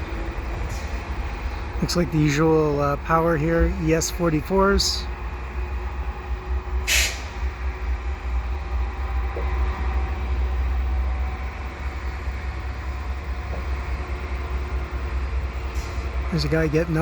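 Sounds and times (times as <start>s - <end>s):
diesel locomotive engine rumble: 0.0s - 17.0s.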